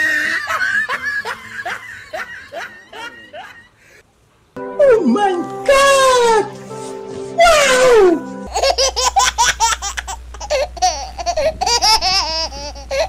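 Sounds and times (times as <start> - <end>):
falling pitched wail: 7.3 - 8.6
baby giggling: 8.5 - 13.0.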